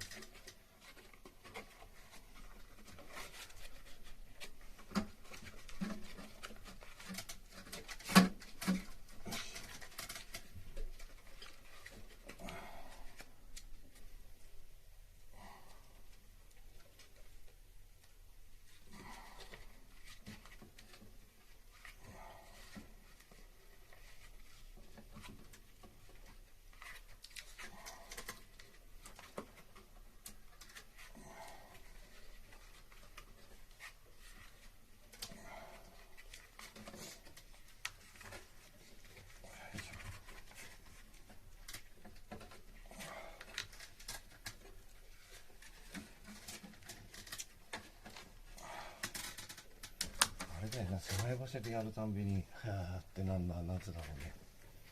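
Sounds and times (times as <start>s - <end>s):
tape handling clicks and rustles: 0.0s - 14.1s, 22.6s - 51.9s.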